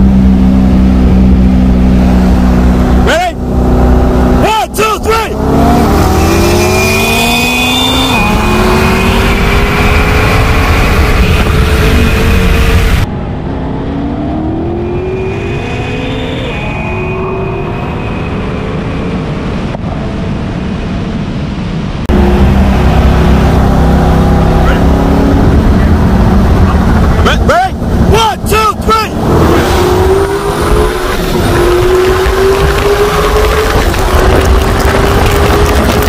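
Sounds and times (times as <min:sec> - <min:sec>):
engine accelerating through gears: 0:05.3 - 0:18.2, 0:29.1 - 0:36.0.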